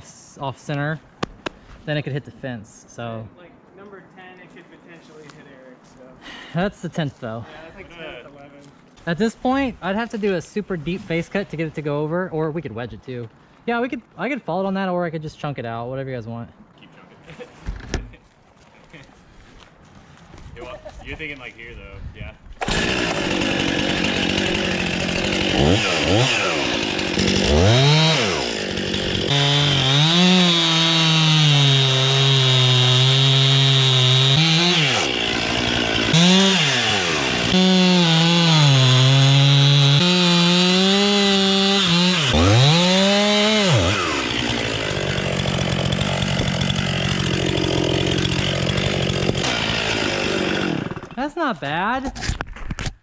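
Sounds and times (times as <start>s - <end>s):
chainsaw cutting tree trunk: 22.6s - 51.2s.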